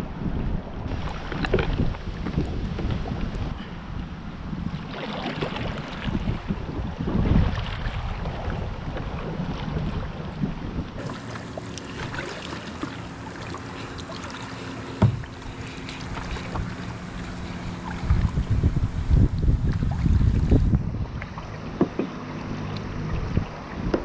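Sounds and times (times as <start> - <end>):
kayak moving through water: 0.0 - 24.0
wind buffeting microphone: 0.0 - 24.0
steady low hum: 11.0 - 23.8
knock: 15.0 - 15.3.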